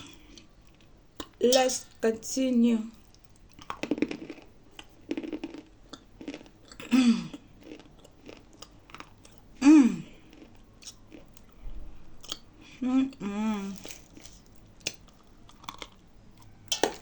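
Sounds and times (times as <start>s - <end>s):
crunching chewing: 3.0s - 12.6s, 13.5s - 17.0s.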